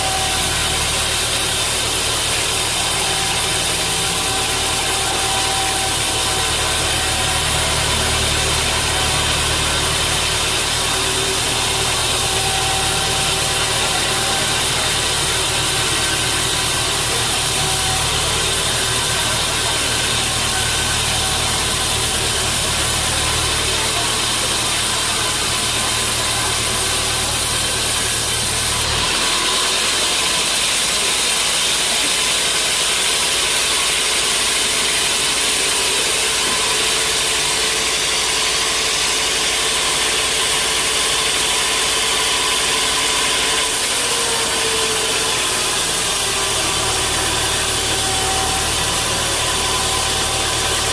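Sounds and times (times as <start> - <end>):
sawmill machinery hum: 0.0 - 50.9.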